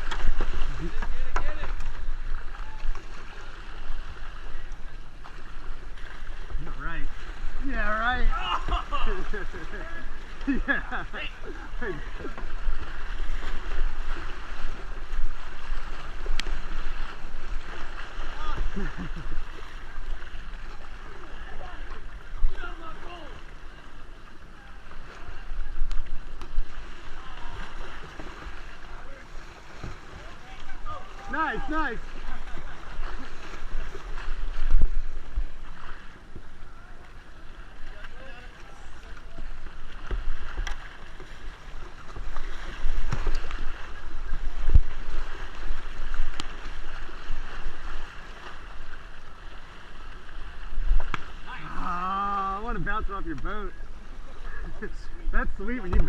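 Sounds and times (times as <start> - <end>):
kayak paddles splashing water: 0.0 - 56.0
wind rumbling on microphone: 42.1 - 49.2.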